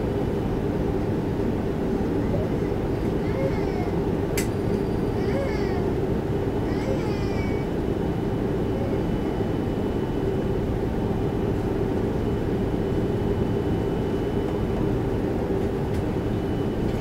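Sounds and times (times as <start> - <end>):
airliner cabin jet engine hum: 0.0 - 17.0
faint high whine: 6.6 - 17.0.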